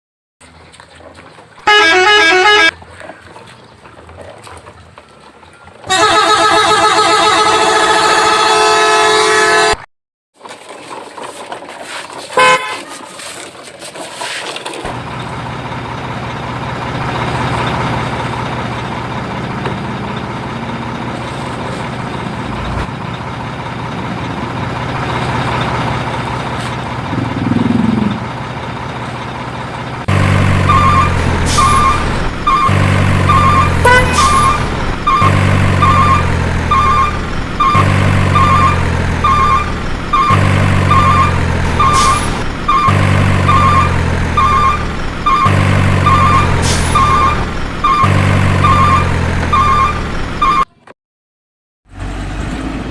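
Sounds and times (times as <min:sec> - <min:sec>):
engine humming: 0:00.4 - 0:09.8, 0:10.4 - 0:50.8
truck horn blaring: 0:01.6 - 0:02.8, 0:05.8 - 0:09.9, 0:12.4 - 0:12.9, 0:30.1 - 0:50.8
reversing alarm beeping: 0:30.5 - 0:50.8.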